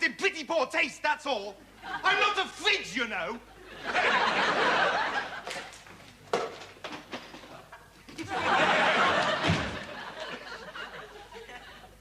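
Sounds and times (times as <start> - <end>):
studio audience laughing: 1.7 - 2.4, 3.4 - 5.8, 7.5 - 12.0.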